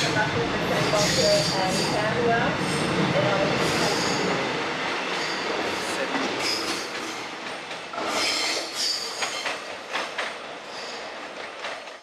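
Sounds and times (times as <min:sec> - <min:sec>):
electric train running on rails: 0:00.0 - 0:12.0
train wheels squealing: 0:00.9 - 0:02.9, 0:05.1 - 0:05.8, 0:08.0 - 0:09.7, 0:10.6 - 0:11.2
wheels clacking over rail joints: 0:02.6 - 0:12.0.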